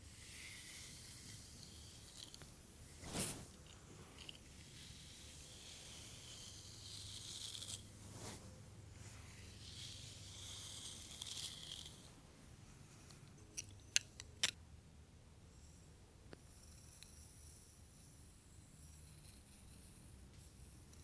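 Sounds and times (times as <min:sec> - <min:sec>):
hairbrush bristles through hair: 0:00.3 - 0:04.3, 0:05.5 - 0:12.1.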